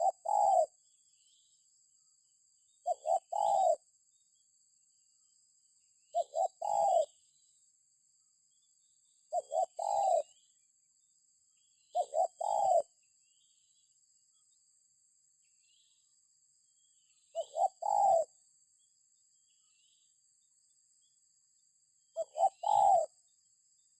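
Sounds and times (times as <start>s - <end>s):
dove cooing: 0.0s - 0.8s, 2.8s - 3.8s, 6.1s - 7.2s, 9.3s - 10.4s, 11.9s - 12.9s, 17.3s - 18.4s, 22.2s - 23.2s.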